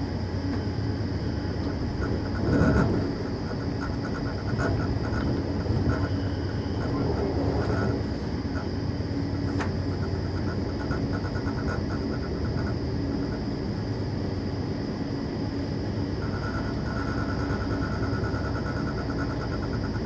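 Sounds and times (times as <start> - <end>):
train wheels rumbling on rails: 1.5 - 8.7.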